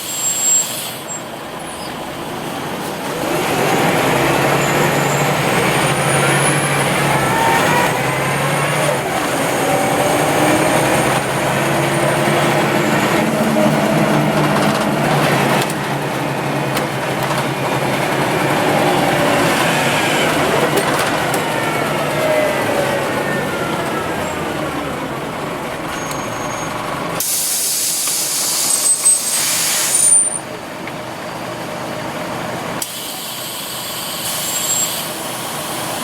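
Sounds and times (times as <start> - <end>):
loud hiss of air: 0.0 - 1.3, 27.2 - 30.2, 32.8 - 36.0
city bus engine whine: 0.0 - 36.0.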